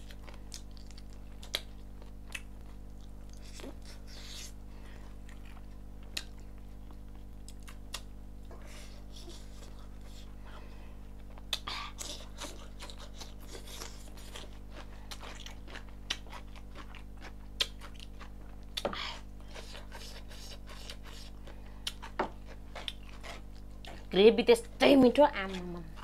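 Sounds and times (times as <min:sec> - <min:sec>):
wet chewing and lip smacking: 0:00.0 - 0:08.2, 0:11.2 - 0:24.1.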